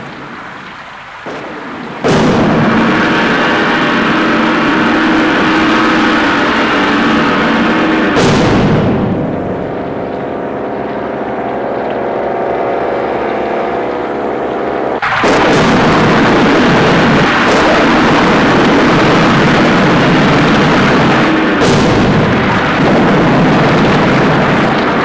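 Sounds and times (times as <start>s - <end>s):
droning hum: 0.0s - 25.0s
rushing roar: 0.0s - 25.0s
sharp hits: 1.2s - 25.0s.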